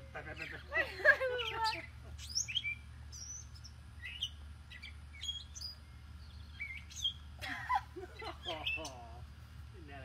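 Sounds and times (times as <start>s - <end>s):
small birds chirping: 0.0s - 10.0s
steady low hum: 0.0s - 10.0s.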